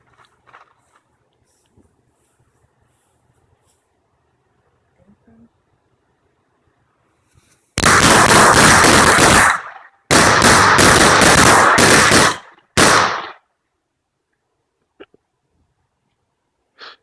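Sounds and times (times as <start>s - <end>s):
firecrackers banging: 7.8s - 13.4s.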